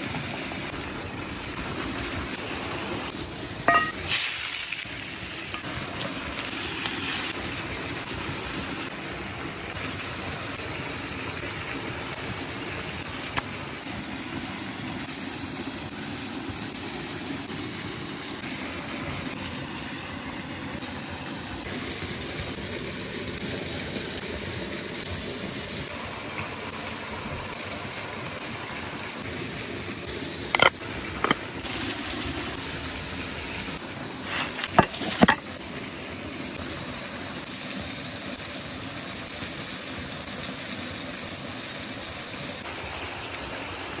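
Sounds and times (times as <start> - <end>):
meat sizzling: 0.4 - 9.0, 29.1 - 35.8
sharp clicks and knocks: 30.5 - 31.4.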